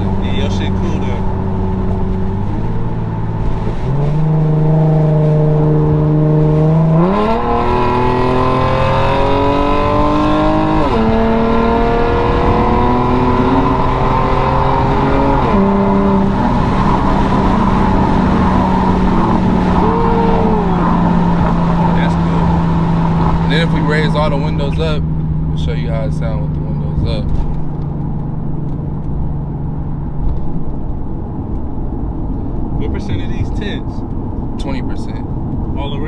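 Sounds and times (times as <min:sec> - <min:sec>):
car engine accelerating hard: 0:00.0 - 0:36.0.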